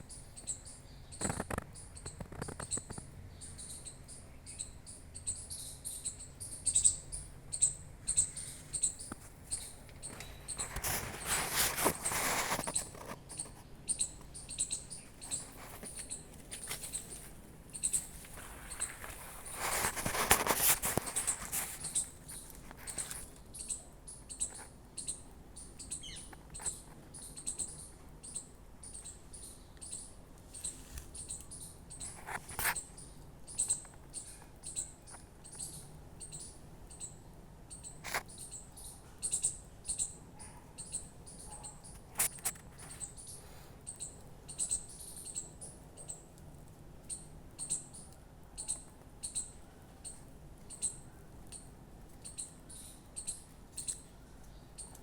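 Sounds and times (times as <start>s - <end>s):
small animal chirping: 0.0s - 46.2s, 47.0s - 55.0s
rustle: 0.0s - 55.0s.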